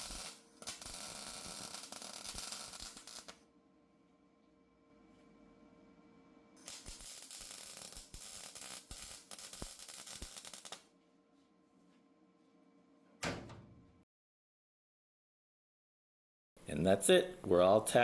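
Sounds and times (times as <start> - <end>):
welding arc crackling: 0.0 - 3.4, 6.6 - 10.9.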